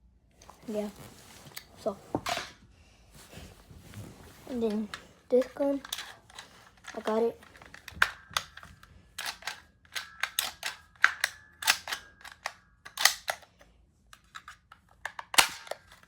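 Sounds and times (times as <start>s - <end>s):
toy gun mechanism clicking: 5.3s - 16.0s.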